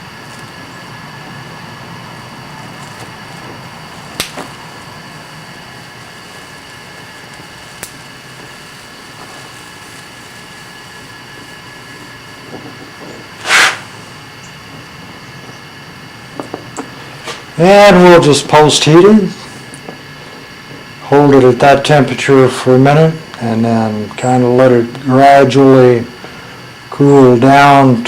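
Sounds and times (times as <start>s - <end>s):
welding torch hissing: 0.0s - 28.0s
loud rushing burst: 13.4s - 13.9s.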